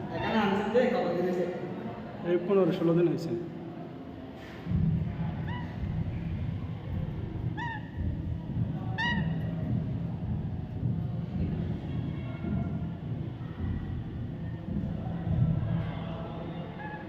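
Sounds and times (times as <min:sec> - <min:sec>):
steady low rumble: 0:04.6 - 0:16.4
parrot calls: 0:05.4 - 0:06.1, 0:07.5 - 0:08.1, 0:08.9 - 0:09.6.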